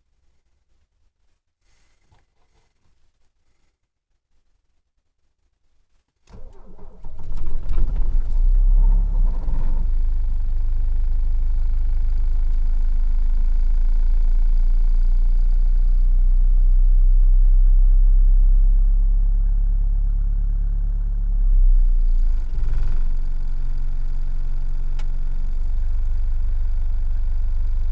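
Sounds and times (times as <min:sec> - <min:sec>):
diesel engine cranking and idling: 0:06.3 - 0:14.2, 0:21.8 - 0:27.9.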